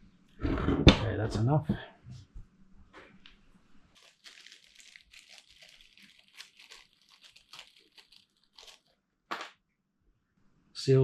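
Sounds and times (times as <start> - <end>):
crinkling and rustling handling noise: 3.0 - 9.0.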